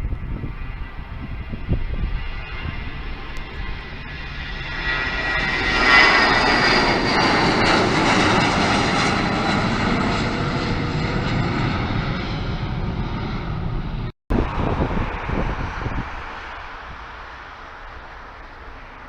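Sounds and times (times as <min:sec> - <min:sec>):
airliner passing: 0:00.0 - 0:19.0
high engine whine: 0:00.0 - 0:19.0.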